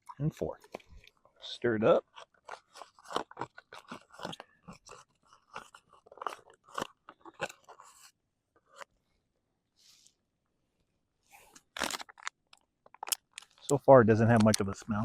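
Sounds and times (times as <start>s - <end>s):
spoon stirring crunchy food: 0.6s - 8.9s.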